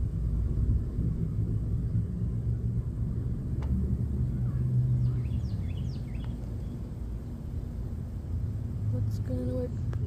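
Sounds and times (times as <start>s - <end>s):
steady low rumble: 0.0s - 10.0s
small bird chirping: 4.8s - 6.9s.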